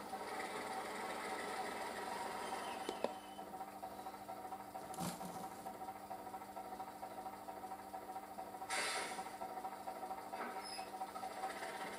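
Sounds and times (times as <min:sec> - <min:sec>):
model locomotive hum and whine: 0:00.0 - 0:11.9
burst of hiss: 0:08.7 - 0:09.2.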